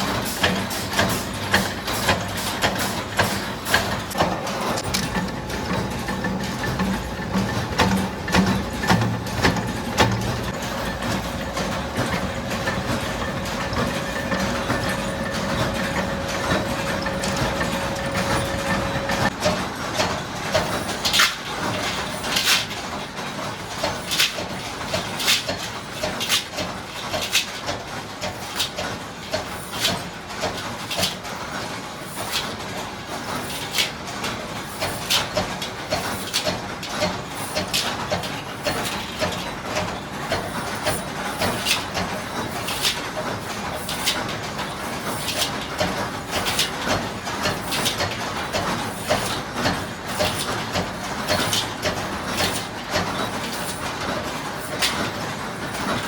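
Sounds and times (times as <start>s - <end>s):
machine hum: 0.0s - 19.4s
sharp machine clacks: 0.0s - 31.6s, 34.7s - 56.0s
held machine tone: 4.8s - 19.3s.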